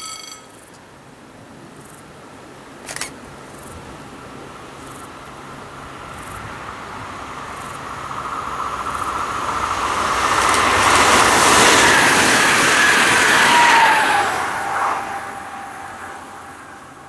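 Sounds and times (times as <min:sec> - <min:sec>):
high ringing from rails and wheels: 0:00.0 - 0:00.8, 0:07.1 - 0:17.0
train approaching on track: 0:00.0 - 0:17.0.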